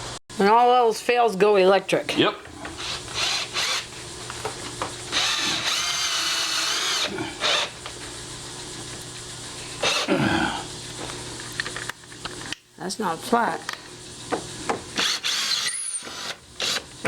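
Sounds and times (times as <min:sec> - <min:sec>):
electric drill-driver running: 0:02.7 - 0:03.9, 0:04.8 - 0:07.9, 0:09.8 - 0:10.1, 0:15.0 - 0:17.0.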